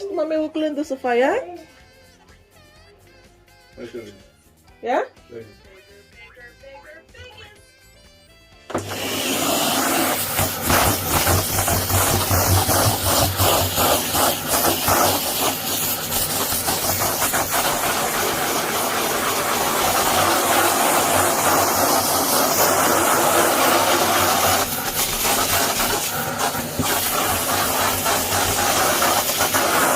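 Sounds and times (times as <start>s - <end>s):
vacuum cleaner running: 8.7s - 29.9s.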